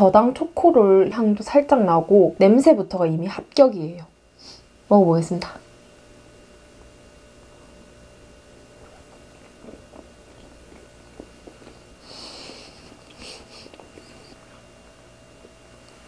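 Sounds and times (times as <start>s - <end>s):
breathy hiss through nose: 4.4s - 4.7s, 12.0s - 14.4s
soft chewing with mouth closed: 8.7s - 14.8s
wet mouth clicks: 9.0s - 11.8s.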